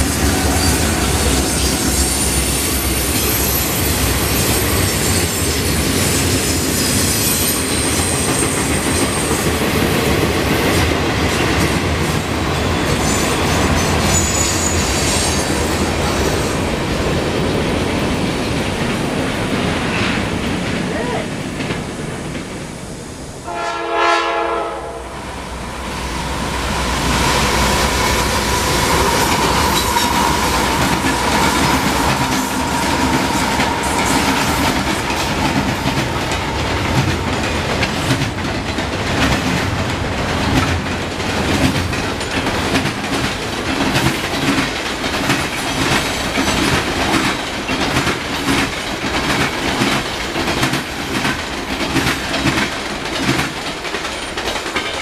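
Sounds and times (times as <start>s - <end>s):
steel wheels rumbling on rail: 0.0s - 55.0s
train horn: 23.4s - 25.5s
wheels clacking over rail joints: 26.4s - 55.0s.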